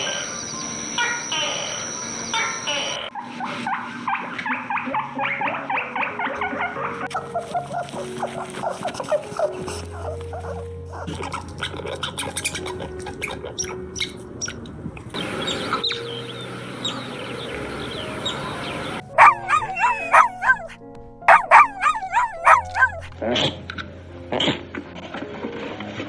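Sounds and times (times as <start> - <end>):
loud whining animal calls: 0.0 - 3.2, 15.2 - 19.0
animal chirping calls: 0.0 - 5.6, 11.3 - 14.6, 15.2 - 20.6
background music: 0.0 - 26.0.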